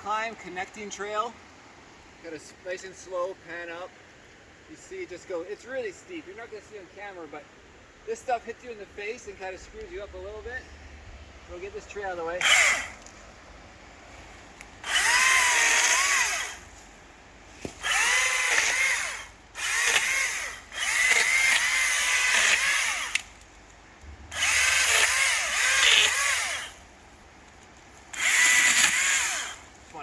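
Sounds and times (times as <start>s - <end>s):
electric chainsaw cutting wood: 12.4s - 13.0s, 14.8s - 16.7s, 17.7s - 23.3s, 24.3s - 26.9s, 28.1s - 29.7s.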